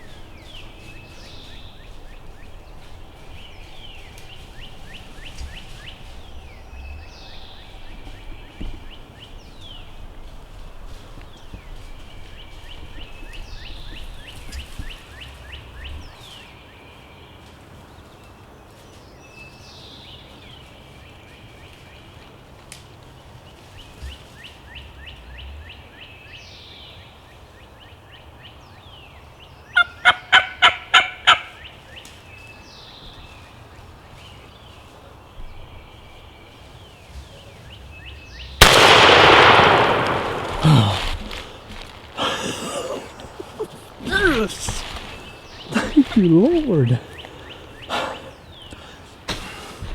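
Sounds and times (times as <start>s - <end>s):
turkey gobbling: 29.8s - 31.5s, 41.2s - 49.1s
shotgun blast echoing: 38.6s - 42.2s.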